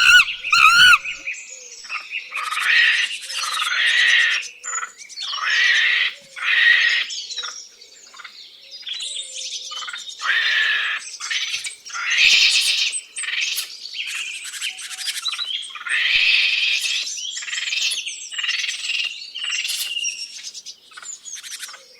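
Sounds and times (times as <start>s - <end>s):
birds chirping and whistling: 0.0s - 1.2s
birds squawking harshly: 0.0s - 1.2s.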